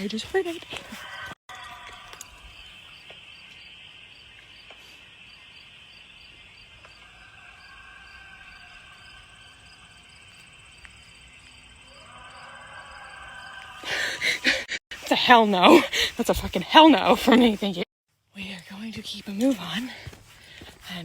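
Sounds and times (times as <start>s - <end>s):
crickets chirping: 1.1s - 17.6s.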